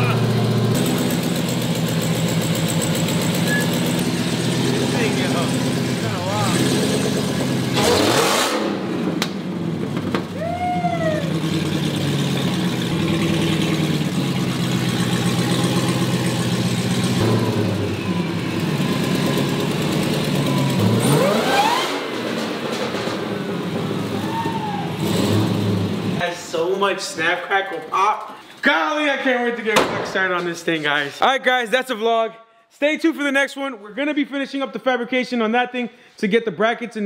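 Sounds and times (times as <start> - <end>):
car engine idling with revs: 0.0 - 10.4, 11.2 - 24.2, 25.0 - 26.2.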